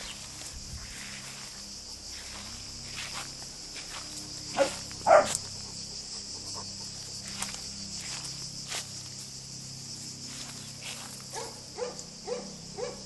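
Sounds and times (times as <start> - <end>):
high buzz of insects: 0.0 - 13.0
dog barking: 4.5 - 5.4, 11.3 - 13.0.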